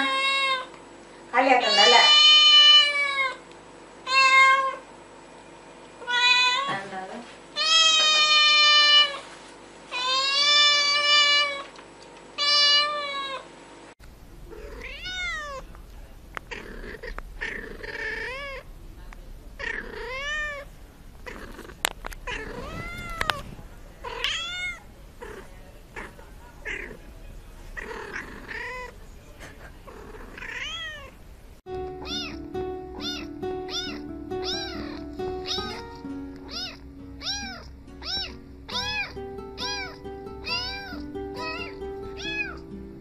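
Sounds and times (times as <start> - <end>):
kitten meowing: 12.4 - 13.4, 14.5 - 15.7, 16.4 - 18.7, 19.6 - 25.4, 30.3 - 31.2, 32.0 - 42.6.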